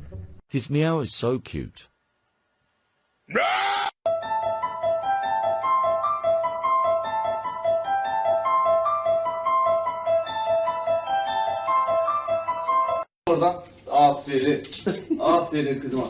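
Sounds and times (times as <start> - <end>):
piano-like keyboard music: 4.1 - 13.1.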